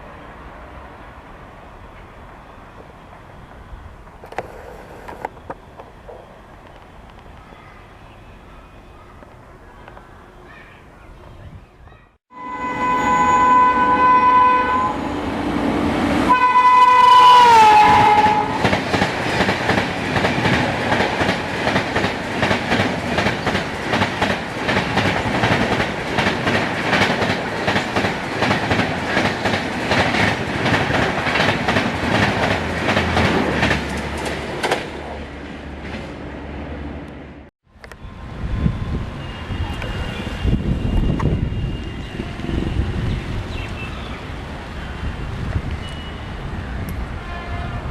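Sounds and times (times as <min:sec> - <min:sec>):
locomotive horn blasts: 0:12.3 - 0:15.3, 0:16.2 - 0:18.7, 0:47.1 - 0:47.9
train wheels clattering over rail joints: 0:18.6 - 0:35.0.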